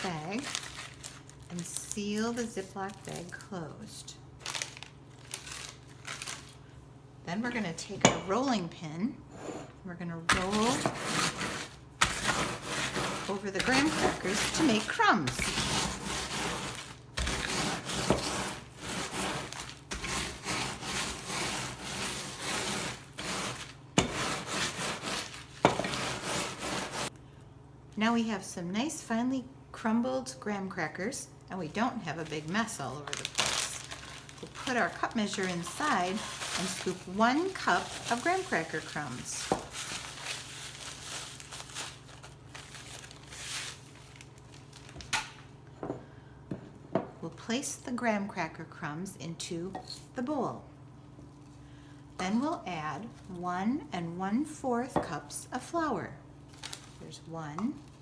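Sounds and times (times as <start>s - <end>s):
crackers crunching under rolling pin: 0.0s - 3.6s, 4.4s - 6.6s, 10.3s - 27.2s, 31.8s - 45.4s
low steady hum: 0.0s - 58.0s
cup scooping crumbs in plastic bag: 10.4s - 27.1s, 32.0s - 44.8s.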